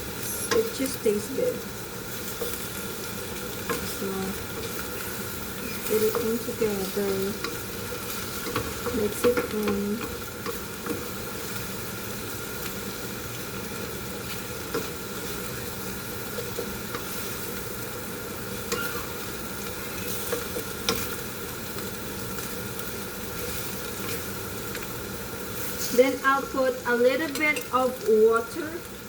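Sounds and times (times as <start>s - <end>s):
food sizzling in hot oil: 0.0s - 29.0s
utensil clicking against pan: 3.5s - 4.8s, 5.7s - 11.1s.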